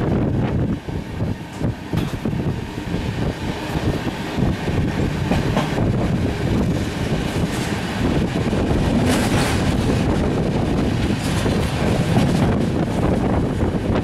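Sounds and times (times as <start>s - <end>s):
train wheels rumbling on track: 0.0s - 14.0s
train wheels clicking: 1.4s - 14.0s.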